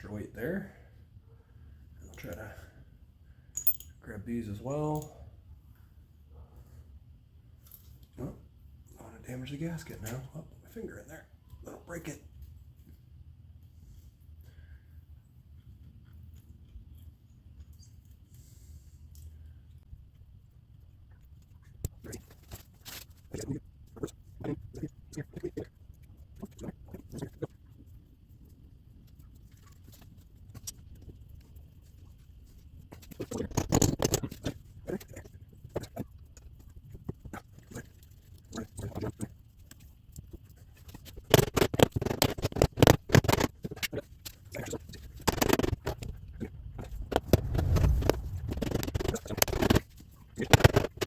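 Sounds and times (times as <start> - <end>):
metal parts and tools clinking: 3.6 - 4.0.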